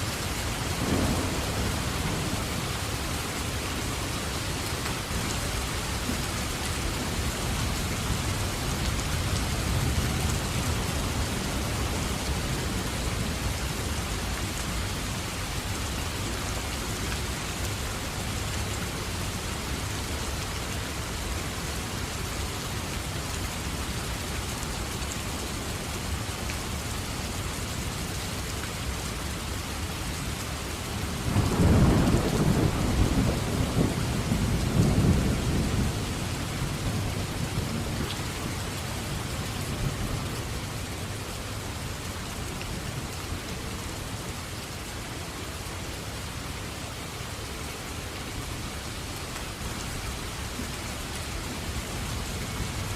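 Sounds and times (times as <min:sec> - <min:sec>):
heavy rain: 0:00.0 - 0:52.9
rolling thunder: 0:00.7 - 0:03.6, 0:31.3 - 0:38.0.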